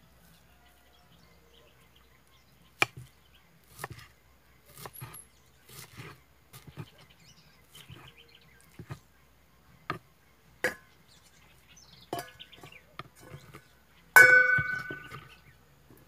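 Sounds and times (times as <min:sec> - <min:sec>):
knife chopping on wooden board: 0:02.8 - 0:03.1, 0:03.7 - 0:04.1, 0:04.7 - 0:07.0, 0:08.7 - 0:09.0
ringing knife strike: 0:14.2 - 0:15.3.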